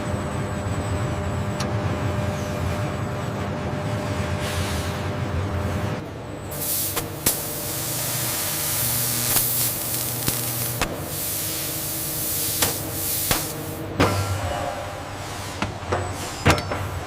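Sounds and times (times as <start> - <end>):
low machine hum: 0.0 - 17.0
steady spraying hiss: 6.6 - 13.8.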